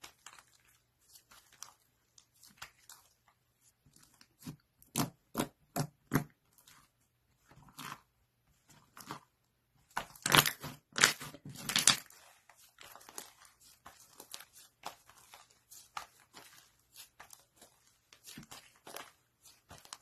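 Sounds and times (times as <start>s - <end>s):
slime squelching and popping: 9.9s - 17.6s.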